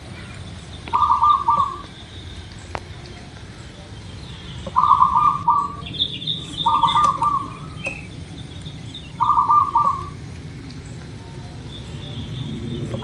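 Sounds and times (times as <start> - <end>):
small birds chirping: 0.0 - 13.0
dove cooing: 0.9 - 2.0, 4.7 - 8.1, 9.1 - 10.3.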